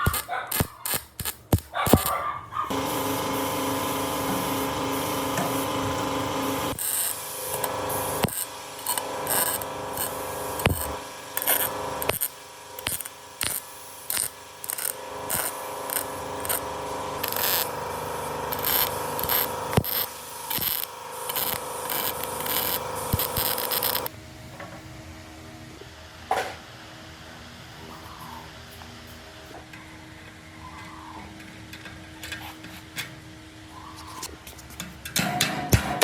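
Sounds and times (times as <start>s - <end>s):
power tool running: 2.7s - 24.1s
hand tool scraping metal: 6.8s - 17.7s.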